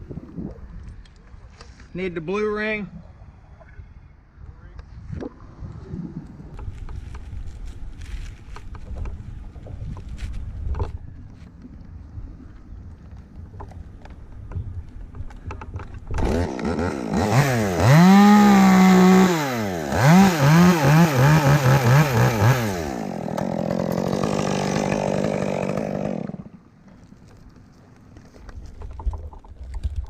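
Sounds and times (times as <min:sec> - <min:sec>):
chainsaw revving: 0:16.1 - 0:26.6.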